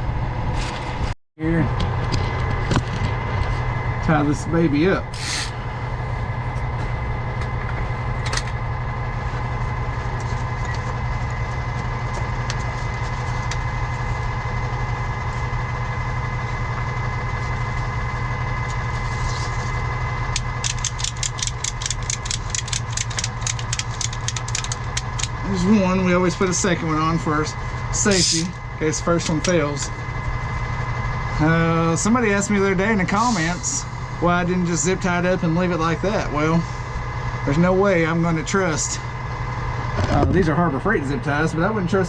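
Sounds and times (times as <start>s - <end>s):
truck engine idling: 1.6s - 42.0s
ratchet strap clicking: 20.4s - 25.4s.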